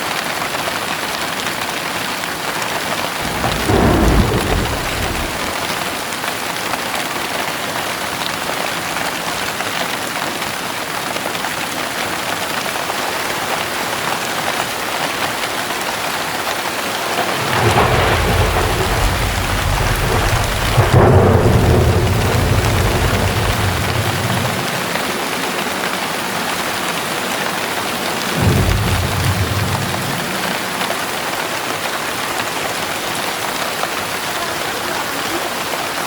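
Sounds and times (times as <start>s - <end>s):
heavy rain pouring: 0.0s - 36.0s
deep thunder rumble: 3.0s - 6.6s, 16.6s - 32.8s.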